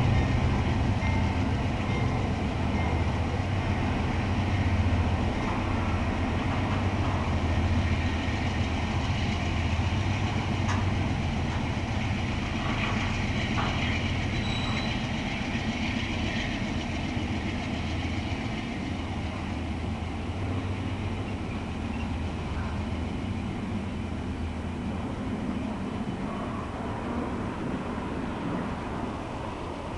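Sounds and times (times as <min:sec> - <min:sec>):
freight train rumbling by: 0:00.0 - 0:29.9
high wheel squeak: 0:14.2 - 0:15.5.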